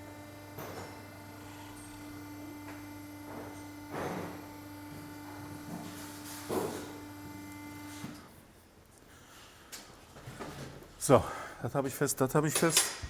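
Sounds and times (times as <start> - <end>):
electric pump motor humming: 0.0 - 8.3.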